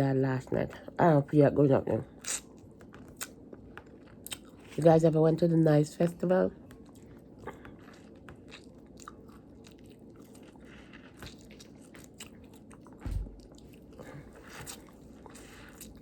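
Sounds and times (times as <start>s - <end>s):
chewing and biting fruit: 2.1s - 4.8s, 6.6s - 16.0s
low thump: 13.0s - 13.4s.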